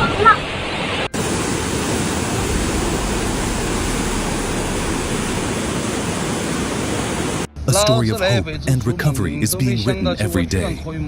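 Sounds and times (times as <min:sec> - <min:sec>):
floodwater rushing: 0:01.2 - 0:07.5.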